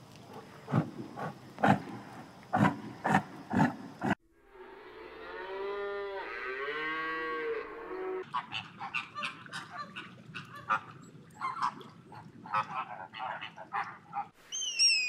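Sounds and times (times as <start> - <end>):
cow mooing: 4.6 - 8.3.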